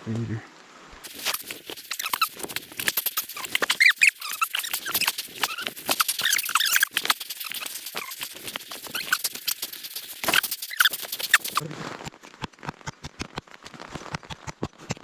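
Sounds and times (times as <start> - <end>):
small animal chirping: 1.0 - 11.6
rapid irregular clicking: 1.0 - 15.0.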